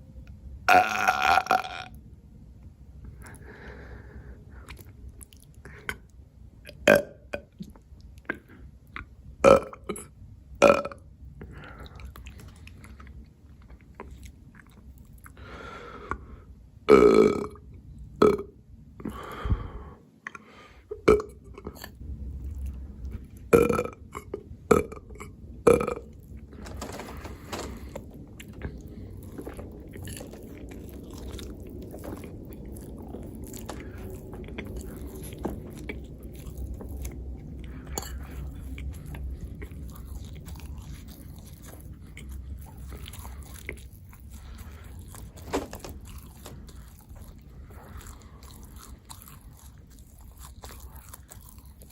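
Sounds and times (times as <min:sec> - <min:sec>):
person burping: 0:00.7 - 0:01.9, 0:06.8 - 0:07.5, 0:16.9 - 0:17.6, 0:20.9 - 0:21.7, 0:23.5 - 0:26.1
person chewing with wet clicks: 0:04.6 - 0:09.1, 0:11.4 - 0:15.4, 0:21.1 - 0:51.9.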